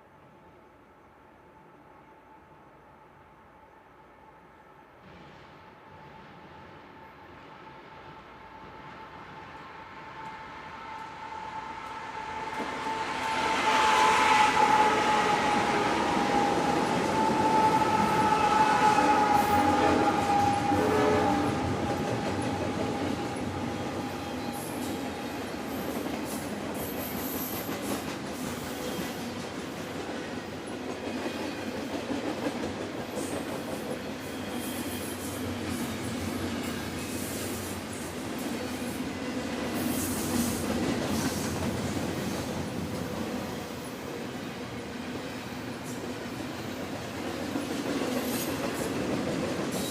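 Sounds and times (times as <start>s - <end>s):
train horn: 5.7s - 25.8s
train wheels rumbling and clattering: 12.3s - 44.7s, 45.8s - 49.9s.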